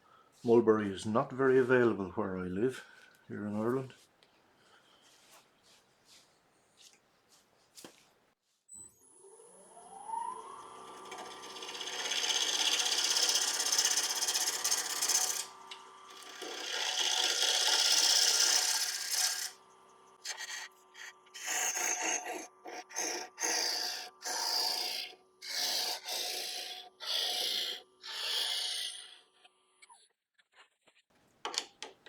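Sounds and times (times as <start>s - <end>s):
wood lathe whining hum: 8.9s - 29.4s
turning tool rasping cuts: 10.4s - 29.4s.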